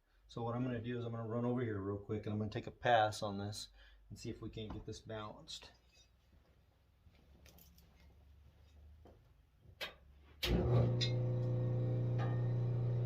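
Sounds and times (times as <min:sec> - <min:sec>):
grinding motor humming: 0:10.6 - 0:13.0.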